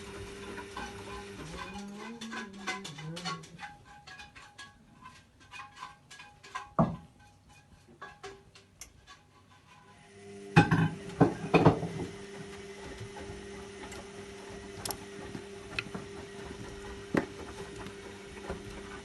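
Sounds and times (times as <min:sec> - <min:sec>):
washing machine motor hum: 0:00.0 - 0:03.7, 0:09.9 - 0:19.0.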